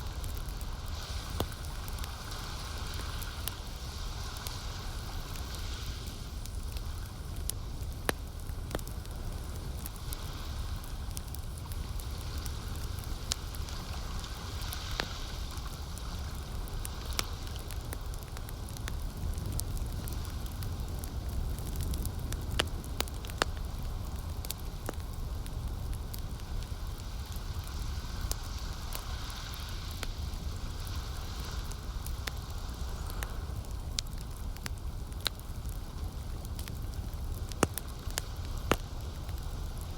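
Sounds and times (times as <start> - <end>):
campfire crackling and popping: 0.0 - 39.9
low fire rumble: 0.0 - 39.9
lake water hiss: 0.1 - 7.3, 9.9 - 17.9, 26.4 - 33.7.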